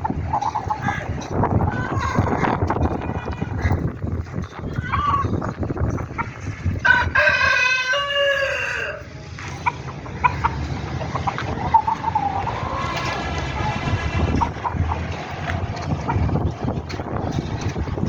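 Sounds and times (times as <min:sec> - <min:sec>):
steady low rumble: 0:00.0 - 0:08.1, 0:09.0 - 0:18.0
rooster crowing: 0:06.8 - 0:09.1.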